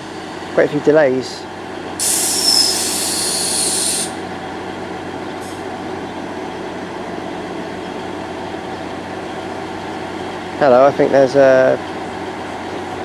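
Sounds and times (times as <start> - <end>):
diesel train engines idling: 0.0 - 13.0
loud hiss: 2.0 - 4.2.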